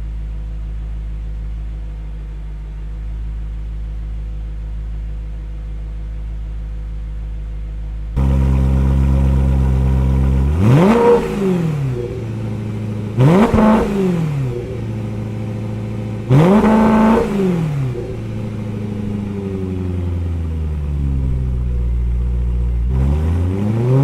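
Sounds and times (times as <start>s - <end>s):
car engine idling: 0.0s - 24.0s
engine revving: 8.2s - 24.0s.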